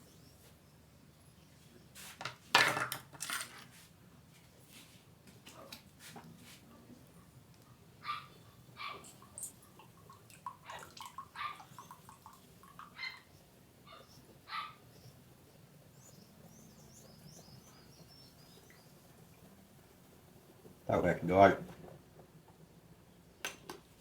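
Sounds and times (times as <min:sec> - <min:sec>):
dog yipping and whining: 0:08.0 - 0:09.6, 0:11.3 - 0:11.9, 0:12.9 - 0:15.1.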